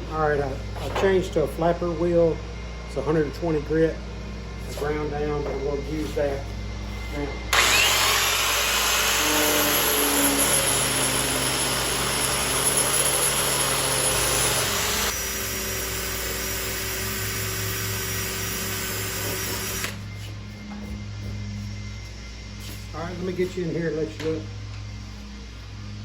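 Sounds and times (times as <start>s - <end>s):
angle grinder grinding metal: 7.5s - 20.2s.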